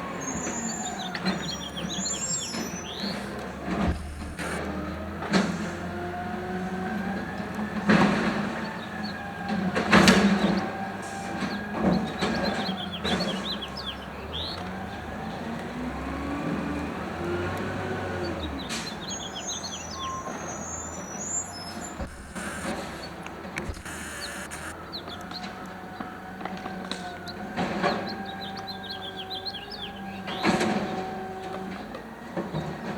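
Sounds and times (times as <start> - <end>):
hydraulic whine: 0.0 - 13.3, 18.6 - 25.4
garbage truck engine running: 0.0 - 31.3.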